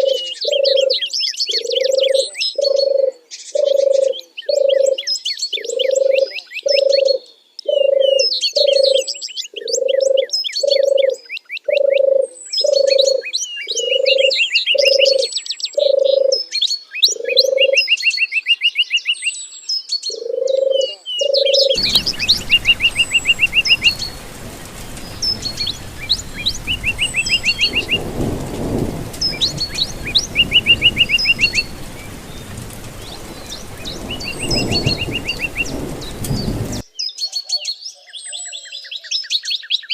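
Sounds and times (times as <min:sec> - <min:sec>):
songbirds chirping and singing: 0:00.0 - 0:39.9
low bird call: 0:20.1 - 0:36.8
bird trilling: 0:20.3 - 0:36.8
running water: 0:21.8 - 0:36.8.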